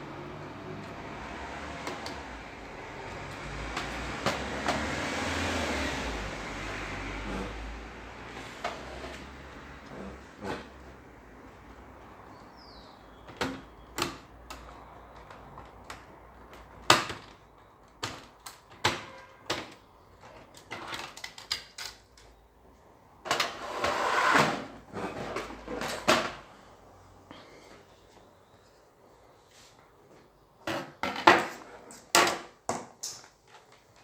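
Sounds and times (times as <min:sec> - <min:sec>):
sharp handling clicks and knocks: 0:13.2 - 0:22.4.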